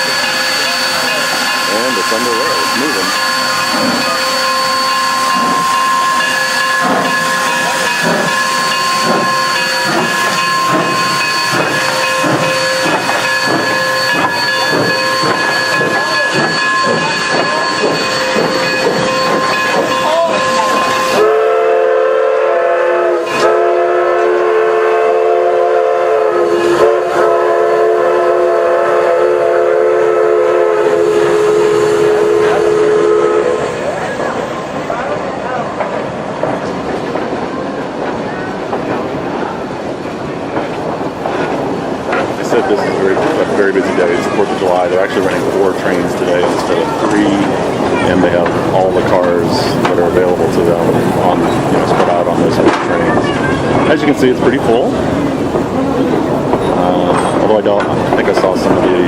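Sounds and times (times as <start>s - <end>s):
steam whistle blast: 0.0s - 16.9s, 18.0s - 33.7s
steam hiss: 0.0s - 21.6s
steam locomotive exhaust beats: 0.0s - 59.0s.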